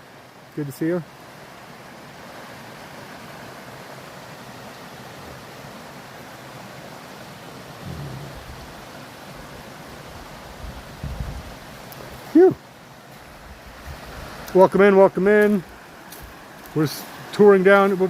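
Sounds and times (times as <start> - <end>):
stream water rushing: 0.0 - 18.0
low thump: 7.8 - 8.6.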